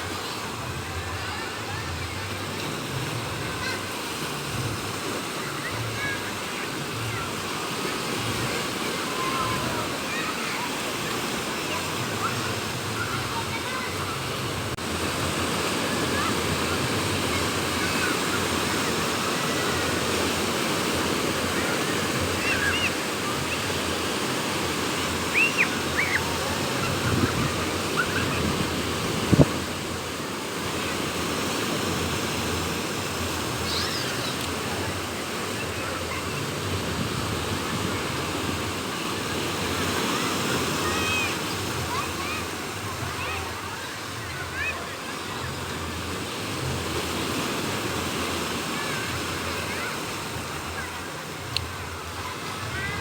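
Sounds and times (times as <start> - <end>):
sea waves breaking on shore: 0.0 - 53.0
wind: 0.0 - 53.0.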